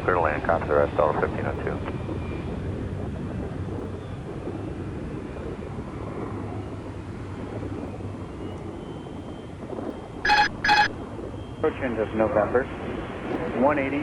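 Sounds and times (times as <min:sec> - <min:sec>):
jet engines rumbling: 0:00.0 - 0:14.0
short beeps: 0:10.3 - 0:11.0.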